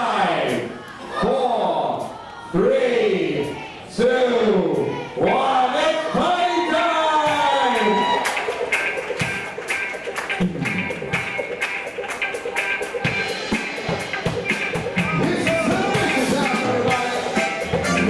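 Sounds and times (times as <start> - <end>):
live band playing upbeat music: 7.2 - 18.0.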